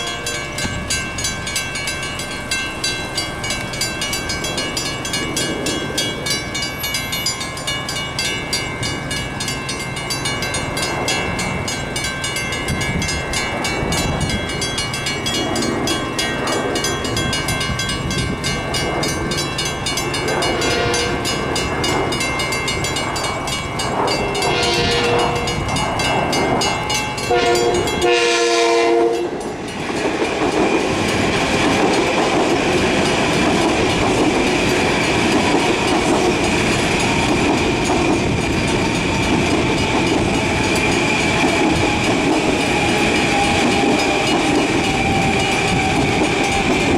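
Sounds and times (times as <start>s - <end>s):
train horn blasts: 0.0s - 0.8s, 20.3s - 21.5s, 24.4s - 25.8s, 27.2s - 29.6s
crossing bells ringing: 0.0s - 46.9s
train wheels rumbling on rails: 0.0s - 46.9s.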